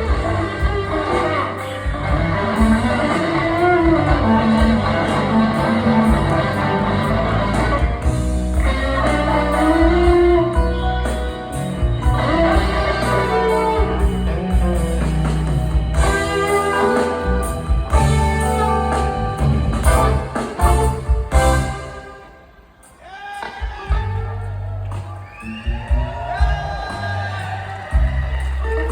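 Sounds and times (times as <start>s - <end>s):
electric guitar lead: 0.0s - 22.3s
blues band playing: 0.0s - 28.9s.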